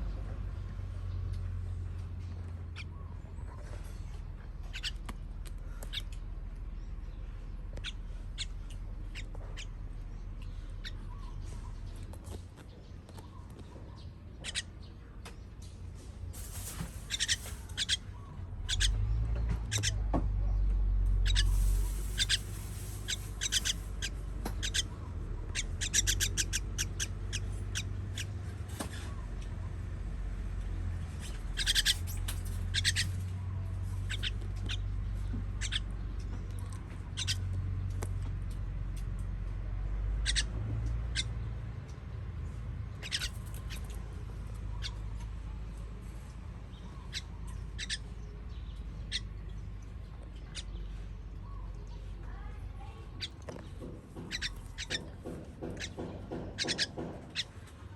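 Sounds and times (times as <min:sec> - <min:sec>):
low steady rumble: 0:00.0 - 0:55.0
baby birds chirping: 0:04.5 - 0:15.6, 0:16.4 - 0:29.6, 0:31.0 - 0:37.6, 0:40.1 - 0:41.5, 0:42.9 - 0:57.8.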